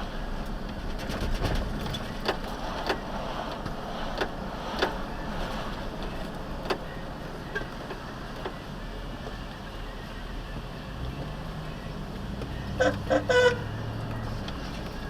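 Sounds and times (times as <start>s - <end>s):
vehicle road and engine noise: 0.0s - 15.0s.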